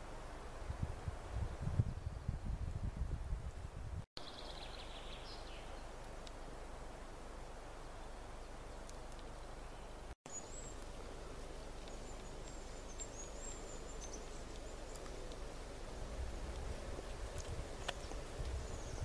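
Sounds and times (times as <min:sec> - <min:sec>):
small bird calling: 0:08.4 - 0:19.0.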